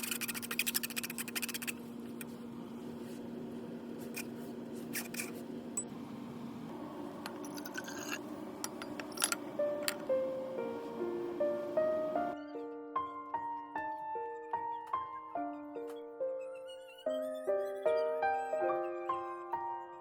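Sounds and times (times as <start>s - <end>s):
fast scraping strokes: 0.0s - 1.8s
soft background music: 9.5s - 20.0s.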